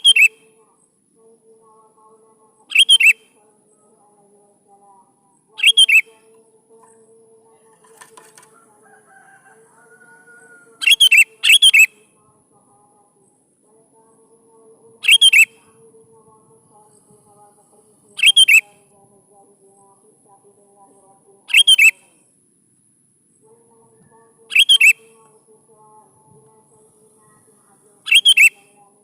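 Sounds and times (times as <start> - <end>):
bird singing bright phrases: 0.0 - 0.5, 2.6 - 4.0, 5.5 - 7.0, 10.0 - 12.0, 15.0 - 15.7, 18.0 - 18.9, 21.0 - 22.0, 23.9 - 25.3, 26.5 - 28.9.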